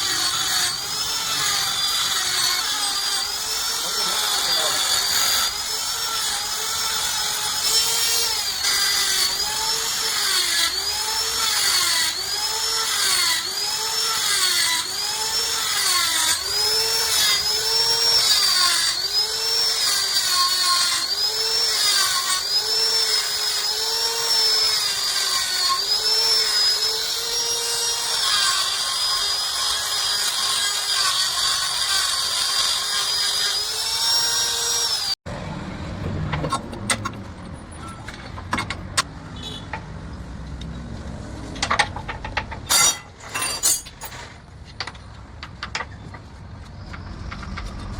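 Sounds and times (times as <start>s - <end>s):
power tool whining on steel: 0.0s - 35.6s.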